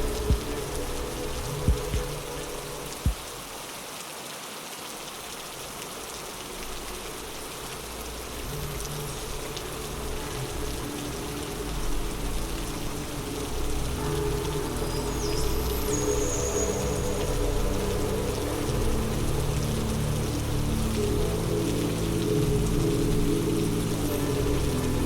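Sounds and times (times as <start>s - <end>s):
steady rainfall: 0.0s - 25.0s.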